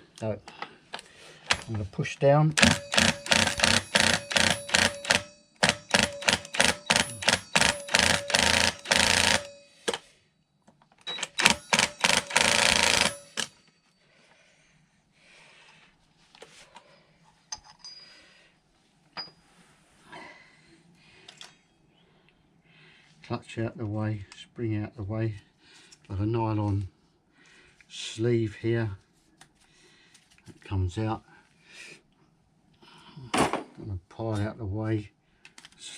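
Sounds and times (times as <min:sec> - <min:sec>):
impact wrench hammering: 0:02.6 - 0:10.1, 0:11.1 - 0:13.6
clinks of metal parts: 0:16.7 - 0:18.3, 0:19.1 - 0:19.4.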